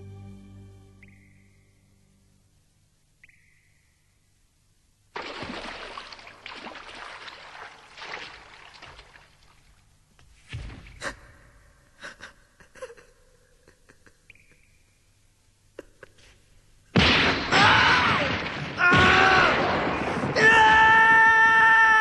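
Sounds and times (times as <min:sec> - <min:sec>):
heavy thud with crack: 0:17.0 - 0:20.4.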